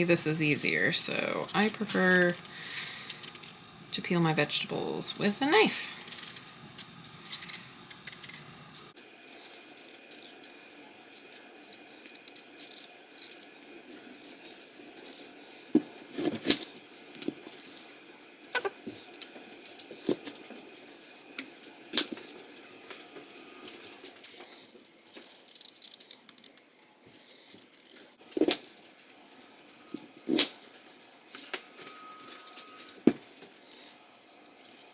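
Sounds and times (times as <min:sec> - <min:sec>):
knife scraping potatoes: 0:18.5 - 0:19.2.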